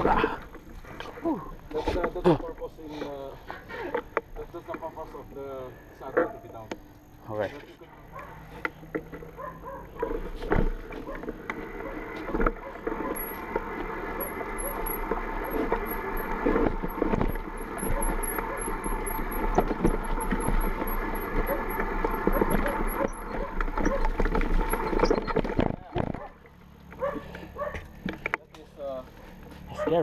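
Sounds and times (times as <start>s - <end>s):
bike rattling over stones: 0.0s - 5.5s, 8.1s - 30.0s.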